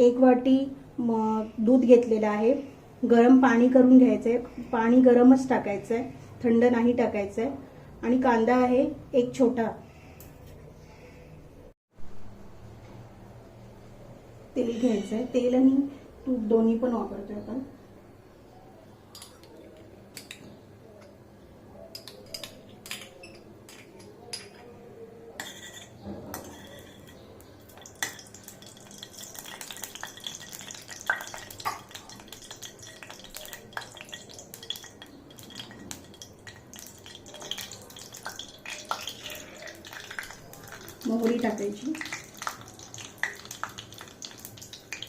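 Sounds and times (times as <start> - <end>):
spoon clinking against pan: 25.4 - 41.4.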